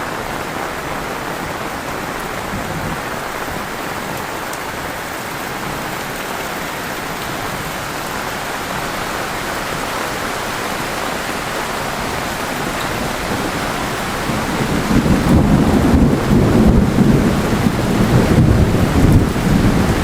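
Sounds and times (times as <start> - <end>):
heavy rain falling: 0.0 - 20.0
low rumble of thunder: 10.7 - 20.0.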